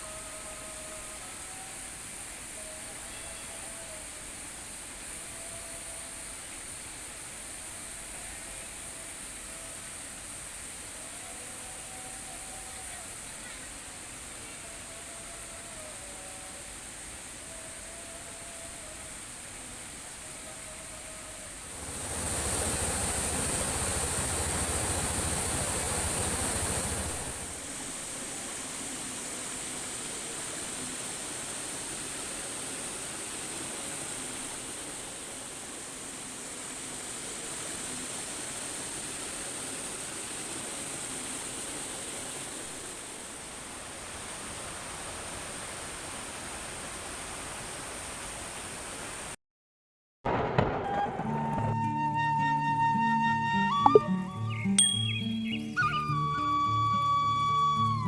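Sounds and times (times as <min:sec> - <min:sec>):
steady rain: 0:00.0 - 0:49.4, 0:56.1 - 0:58.0
faint brief tones: 0:53.8 - 0:54.9.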